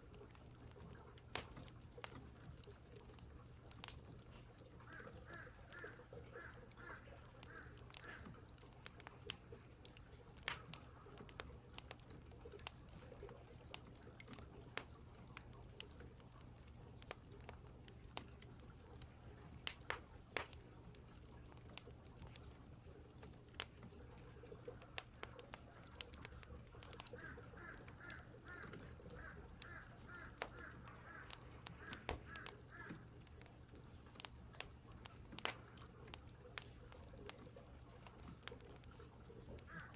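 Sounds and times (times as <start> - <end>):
faint sharp clicks: 0.1 - 39.9
crows cawing: 4.8 - 8.4, 26.9 - 33.2, 39.6 - 39.9.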